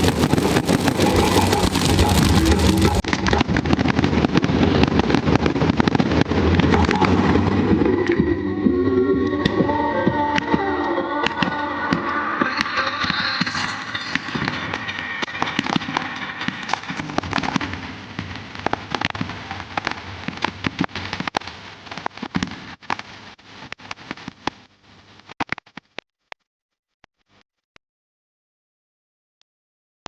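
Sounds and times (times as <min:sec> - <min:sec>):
fireworks crackling and banging: 0:00.0 - 0:06.7, 0:15.5 - 0:24.7.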